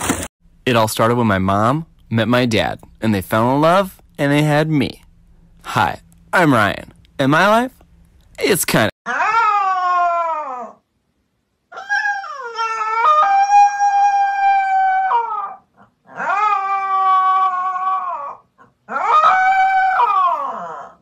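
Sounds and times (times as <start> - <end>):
puppy howling: 9.1 - 10.9, 11.7 - 21.0.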